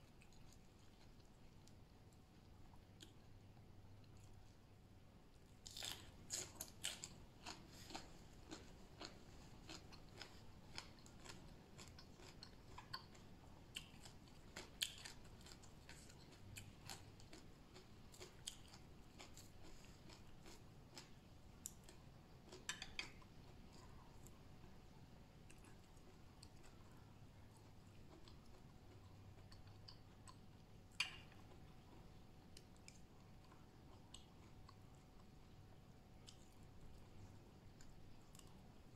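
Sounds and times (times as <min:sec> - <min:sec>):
person chewing crunchy vegetables: 0:05.5 - 0:24.8, 0:25.4 - 0:35.5.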